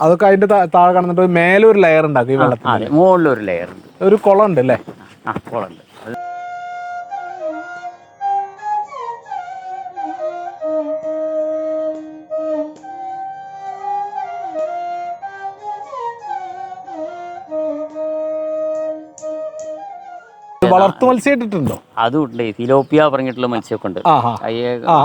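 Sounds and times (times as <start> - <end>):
solo flute melody: 6.2 - 20.9.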